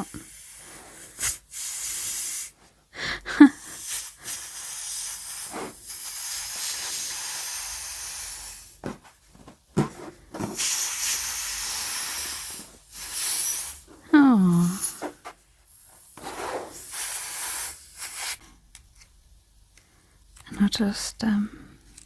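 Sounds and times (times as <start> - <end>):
air hissing out of balloon: 0.0 - 8.8, 10.4 - 18.5.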